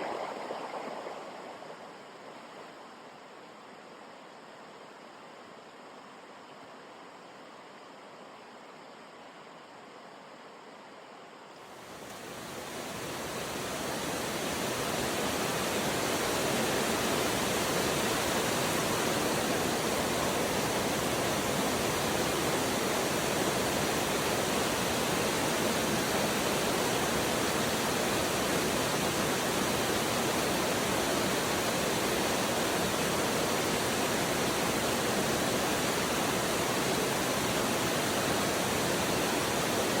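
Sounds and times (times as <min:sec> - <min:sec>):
rushing water: 0:00.0 - 0:03.1, 0:11.7 - 0:40.0.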